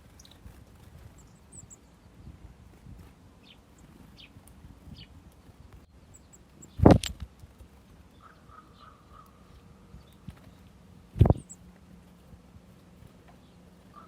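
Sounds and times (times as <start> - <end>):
faint high bird chirps: 8.1 - 11.7.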